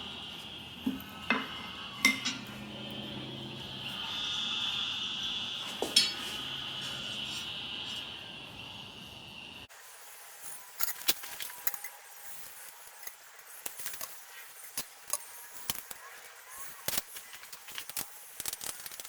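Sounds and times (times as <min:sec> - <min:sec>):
steady hiss: 0:00.0 - 0:10.0
metal tools clinking: 0:00.8 - 0:02.7, 0:05.8 - 0:06.4.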